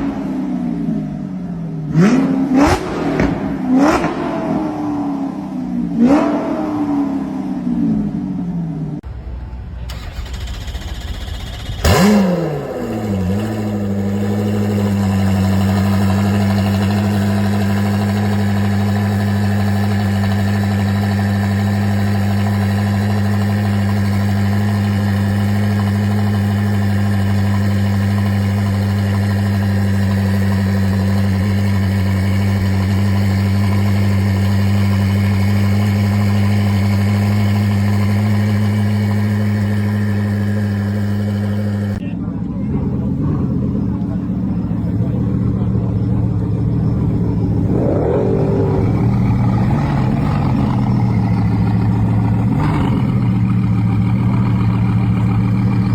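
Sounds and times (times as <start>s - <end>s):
car engine idling: 7.6s - 55.9s.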